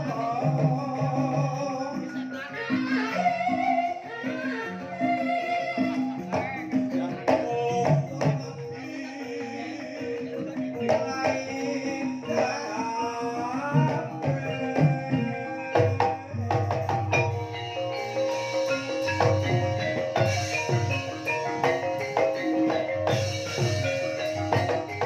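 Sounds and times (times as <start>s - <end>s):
metallophones held notes: 0.0s - 25.0s
wavering melodic line: 1.6s - 25.0s.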